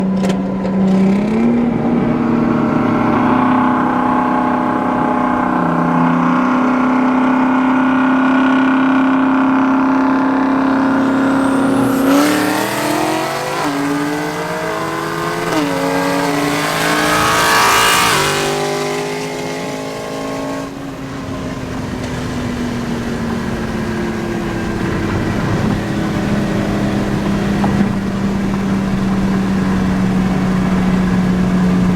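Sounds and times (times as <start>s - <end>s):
car engine accelerating through gears: 0.0s - 31.9s.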